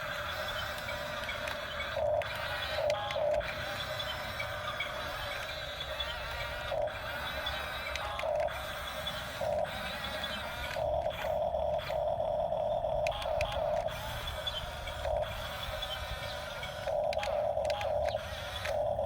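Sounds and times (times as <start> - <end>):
scattered clicks: 0.0 - 19.0
toy electric motors whirring: 0.0 - 19.0.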